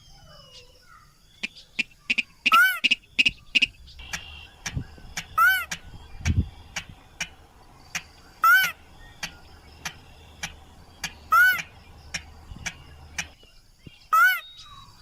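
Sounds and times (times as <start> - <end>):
rail bird ringing calls: 0.0 - 13.4, 14.0 - 15.0
rail bird ticking notes: 1.4 - 13.4.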